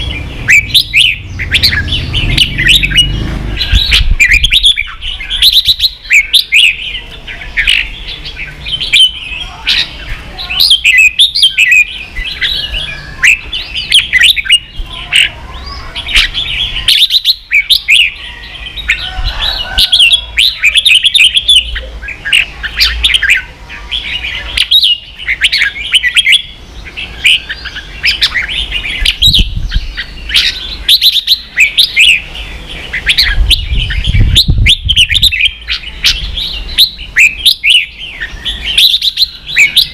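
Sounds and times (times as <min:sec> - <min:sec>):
bird singing sliding whistled notes: 0:00.0 - 0:07.0, 0:24.2 - 0:39.9.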